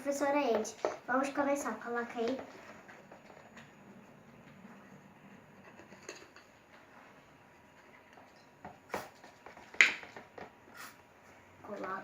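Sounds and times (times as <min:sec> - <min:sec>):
containers clicking and knocking: 0:05.5 - 0:06.9, 0:08.1 - 0:10.7.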